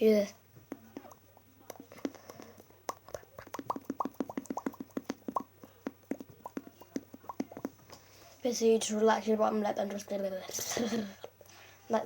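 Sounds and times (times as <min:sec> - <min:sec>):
mouth making bubble pops: 0:00.7 - 0:07.8.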